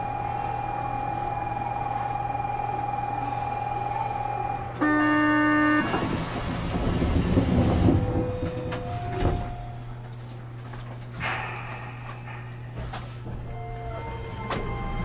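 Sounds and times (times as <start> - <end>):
train pulling away rumbling: 0.0 - 10.1, 11.2 - 15.0
train horn blast: 4.8 - 6.2.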